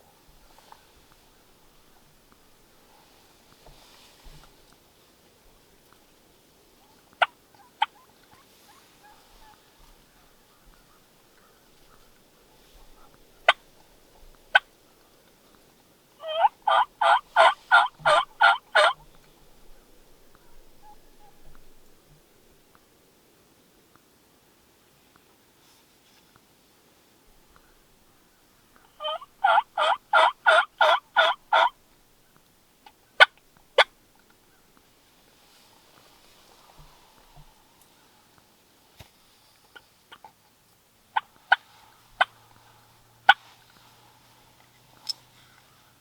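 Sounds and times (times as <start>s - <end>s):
turkey yelps: 6.8s - 12.1s, 16.2s - 19.2s, 20.4s - 21.6s, 28.8s - 31.8s
turkey clucks: 6.8s - 14.8s, 16.2s - 21.9s, 28.8s - 31.8s, 32.8s - 34.7s, 41.1s - 43.8s.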